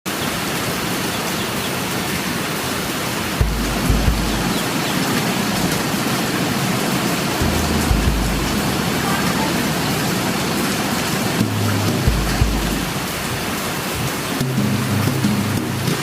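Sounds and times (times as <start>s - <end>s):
heavy rain falling: 0.1s - 16.0s
low thumps: 3.4s - 5.9s, 7.4s - 13.2s, 14.4s - 16.0s.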